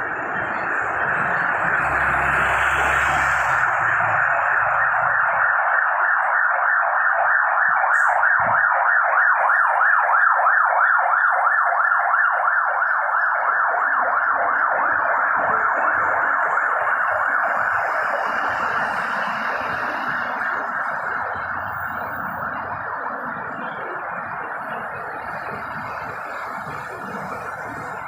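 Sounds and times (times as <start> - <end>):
emergency siren yelping: 0.0 - 28.0.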